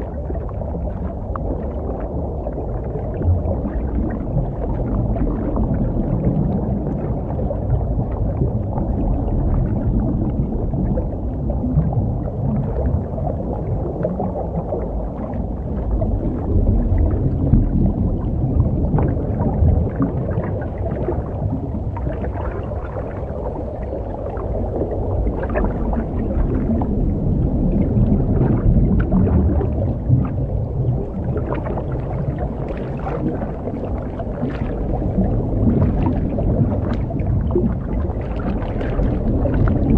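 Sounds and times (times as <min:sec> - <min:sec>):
breathing gear bubbling and gurgling: 0:00.0 - 0:39.9
muffled underwater rumble: 0:00.0 - 0:39.9.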